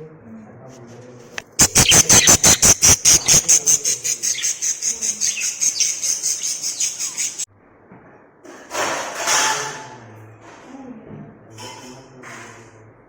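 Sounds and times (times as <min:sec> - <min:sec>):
parrots chirping: 0:01.4 - 0:07.5.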